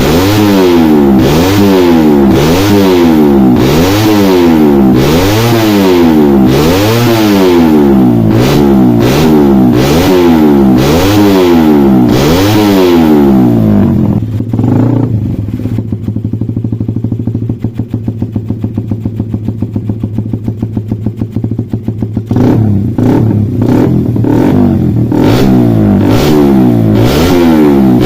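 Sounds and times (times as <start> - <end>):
motorcycle engine revving: 0.0 - 28.0
motorcycle engine idling: 13.2 - 27.0.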